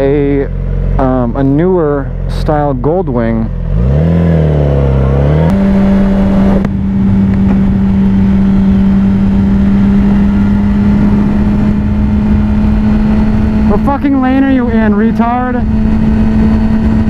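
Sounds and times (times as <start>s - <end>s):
motorcycle engine: 0.0s - 17.0s
wind rush on microphone: 5.5s - 17.0s.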